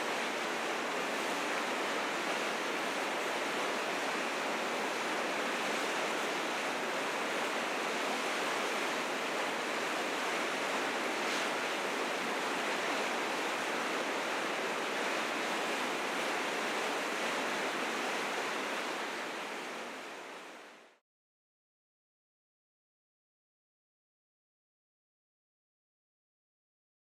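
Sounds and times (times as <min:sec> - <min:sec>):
river rapids roaring: 0:00.0 - 0:20.9.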